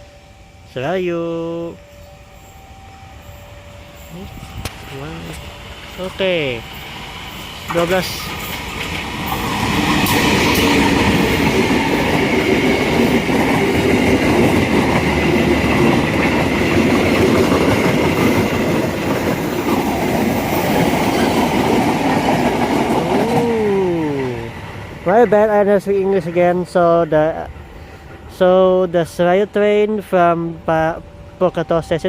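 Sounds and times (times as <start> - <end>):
steady high tone: 0.0 - 8.7
train wheels clattering over rails: 6.8 - 24.0.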